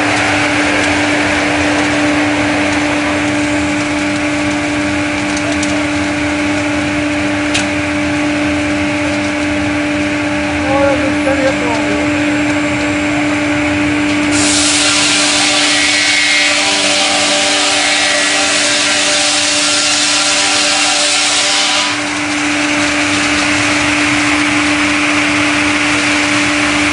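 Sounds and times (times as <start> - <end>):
sawmill humming: 0.0 - 26.9
saw blades cutting log: 14.3 - 22.8.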